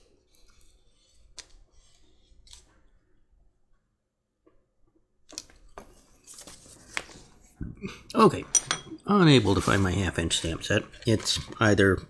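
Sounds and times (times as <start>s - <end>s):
metal tools clattering: 8.4s - 9.0s.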